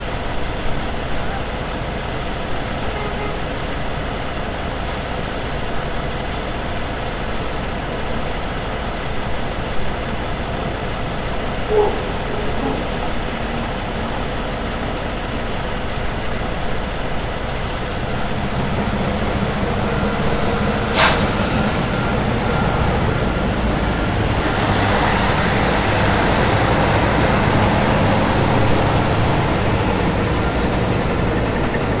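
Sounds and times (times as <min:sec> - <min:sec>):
truck diesel engines running: 0:00.0 - 0:32.0
air-brake hiss: 0:18.6 - 0:23.0.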